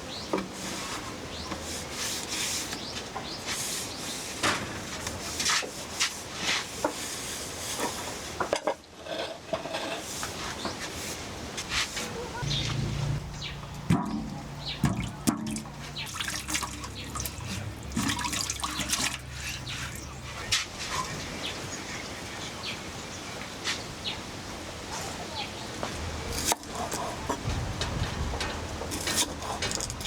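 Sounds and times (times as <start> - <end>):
water dripping and splashing: 12.5 - 20.8
clicks and knocks: 13.5 - 16.0.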